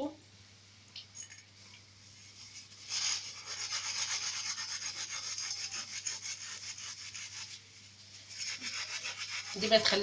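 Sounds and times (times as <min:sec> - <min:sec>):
steel wool scrubbing metal: 0:02.3 - 0:10.0.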